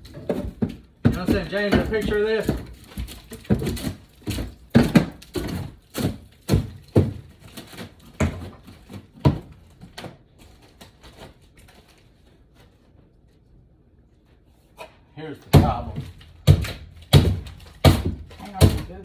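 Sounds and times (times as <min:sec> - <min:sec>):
knocks and thuds on wood: 0:00.0 - 0:10.2, 0:15.5 - 0:19.0.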